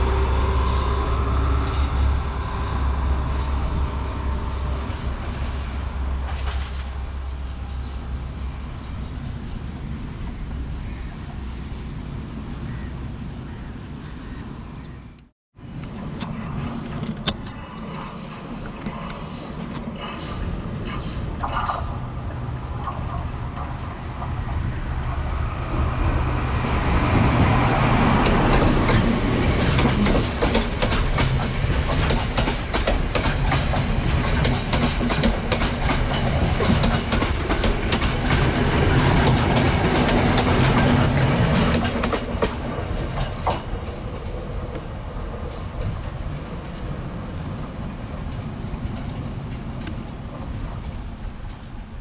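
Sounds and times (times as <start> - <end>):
train engine hum: 0.0 - 52.0
wheels clacking over rail joints: 22.8 - 46.9.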